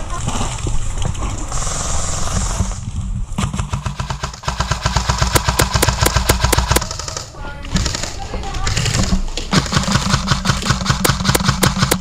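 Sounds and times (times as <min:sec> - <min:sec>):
airsoft gun firing rapidly: 0:03.4 - 0:12.0.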